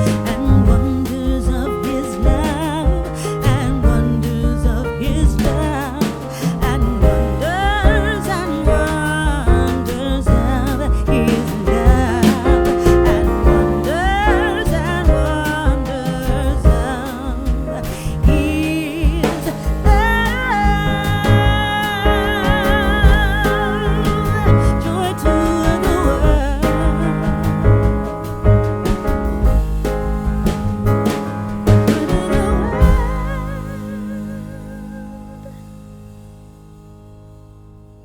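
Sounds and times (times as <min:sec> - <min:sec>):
music with singing over beat: 0:31.7 - 0:35.3.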